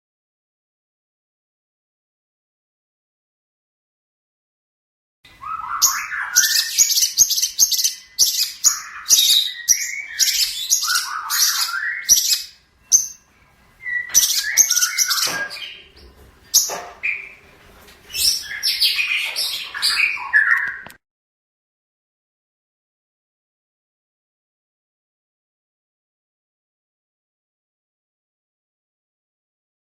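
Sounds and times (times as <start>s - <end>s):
bird chirping and chattering: 5.5s - 13.2s, 13.9s - 17.4s, 18.1s - 20.8s.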